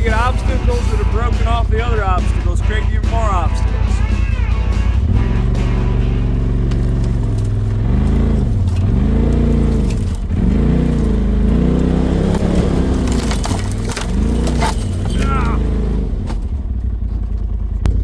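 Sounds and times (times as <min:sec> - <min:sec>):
engine revving: 0:00.0 - 0:18.0
knocks and crunches on obstacles: 0:06.5 - 0:18.0.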